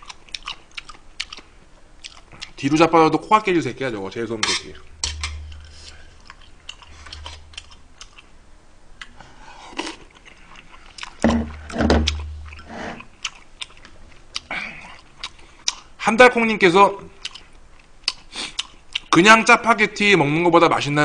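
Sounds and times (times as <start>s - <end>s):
chewing noodles: 0.0s - 2.6s, 9.0s - 11.2s, 12.1s - 15.9s, 17.2s - 19.1s.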